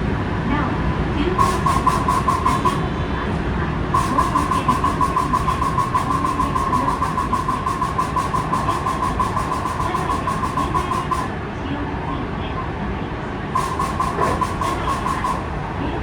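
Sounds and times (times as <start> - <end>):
rapid clacking under train floor: 13.6 - 16.0.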